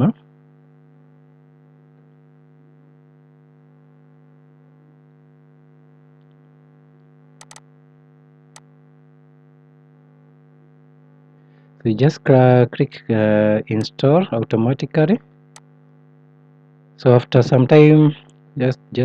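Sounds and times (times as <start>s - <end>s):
electrical mains hum: 0.0s - 19.0s
computer mouse clicks: 7.4s - 7.6s.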